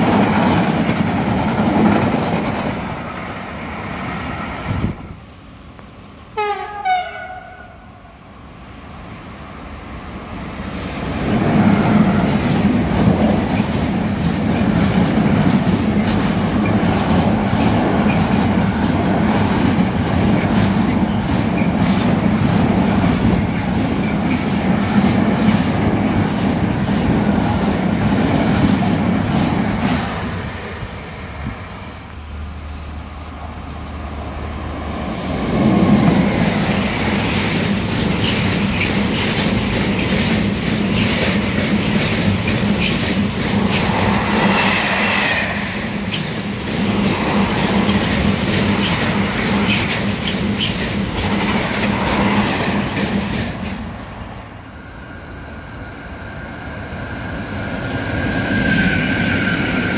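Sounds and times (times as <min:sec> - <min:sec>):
freight train rolling past: 0:00.0 - 0:59.9
train rumble with wheels clattering: 0:00.0 - 0:59.9
train horn blasts: 0:06.4 - 0:08.1.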